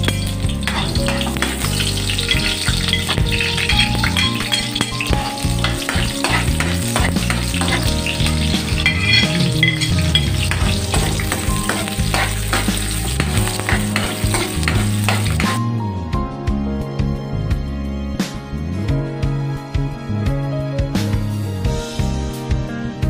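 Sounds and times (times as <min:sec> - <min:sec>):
onion sizzling in hot oil: 0:00.0 - 0:15.6
spatula scraping metal wok: 0:00.0 - 0:15.6.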